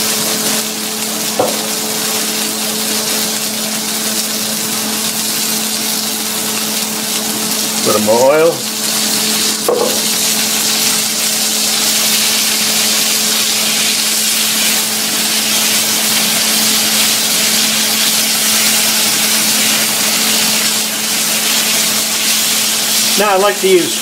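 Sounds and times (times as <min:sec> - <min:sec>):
chicken sizzling in oil: 0:00.0 - 0:24.0.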